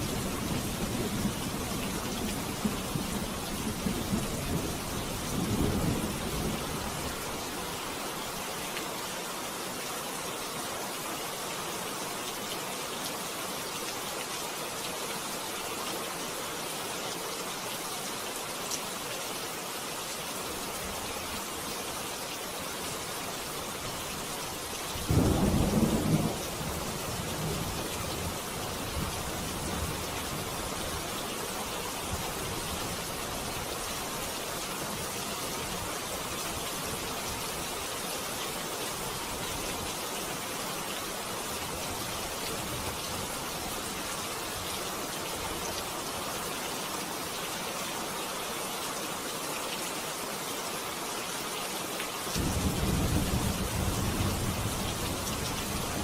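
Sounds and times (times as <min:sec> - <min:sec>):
steady rain falling: 0:00.0 - 0:56.0
thunder rumbling: 0:25.1 - 0:27.7.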